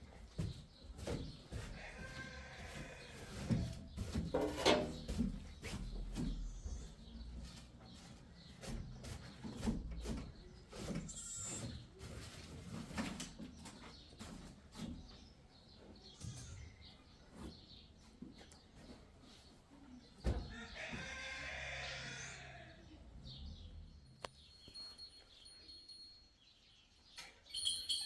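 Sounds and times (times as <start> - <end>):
knocks and clatter: 3.4 - 6.4.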